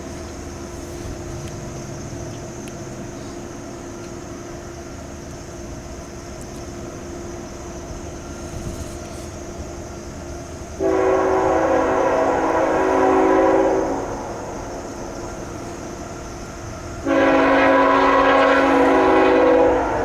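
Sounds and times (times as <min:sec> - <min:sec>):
train rumble: 0:00.0 - 0:20.0
locomotive air horn blast: 0:10.8 - 0:14.8, 0:17.0 - 0:20.0.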